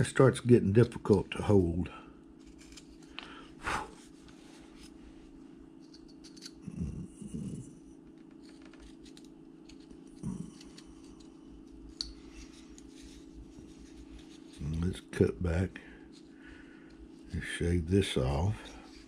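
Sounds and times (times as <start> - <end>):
steady low hum: 0.0 - 19.0
knife shaving and scraping wood: 1.4 - 5.0, 8.4 - 15.3.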